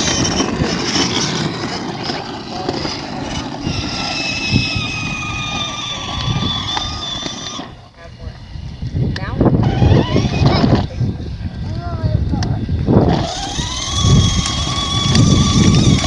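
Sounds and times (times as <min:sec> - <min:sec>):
toy motor whining: 0:00.0 - 0:07.8, 0:09.6 - 0:10.9, 0:13.0 - 0:16.0
wheels rolling: 0:00.0 - 0:16.0.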